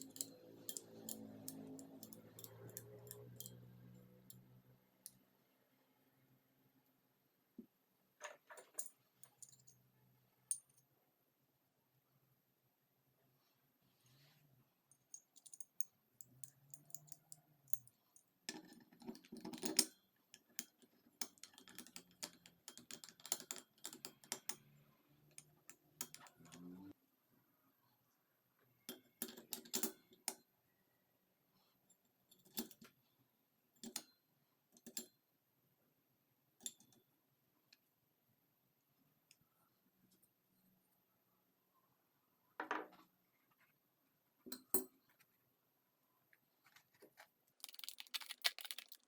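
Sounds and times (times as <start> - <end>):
metal parts and tools clinking: 0.0 - 4.4, 15.1 - 24.7, 25.3 - 26.8, 47.6 - 49.0.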